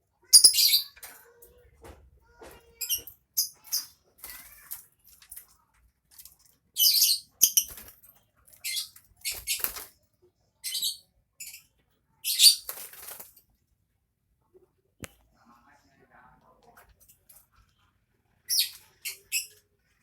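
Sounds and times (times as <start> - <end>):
lovebird chattering: 0.4 - 1.0.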